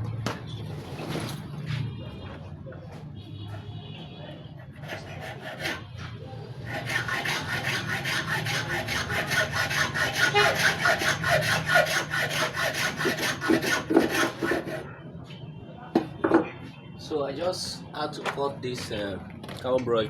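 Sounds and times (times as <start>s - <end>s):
hand saw cutting carbon block: 4.8s - 5.8s, 6.6s - 14.8s.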